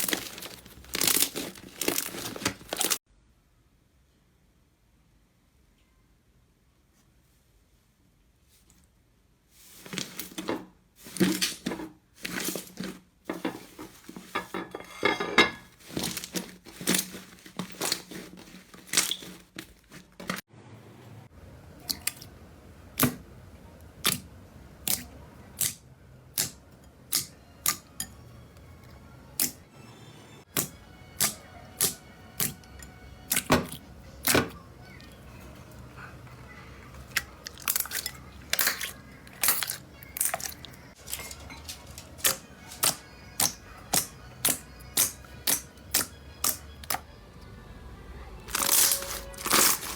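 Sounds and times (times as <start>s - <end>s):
slime crackling and squelching: 0.0s - 3.0s, 15.8s - 20.4s, 36.7s - 47.0s, 48.5s - 49.9s.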